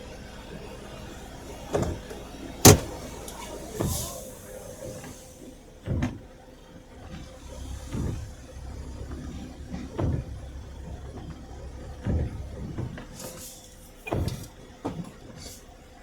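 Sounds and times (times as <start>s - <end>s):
knocks and thumps: 2.7s - 3.0s.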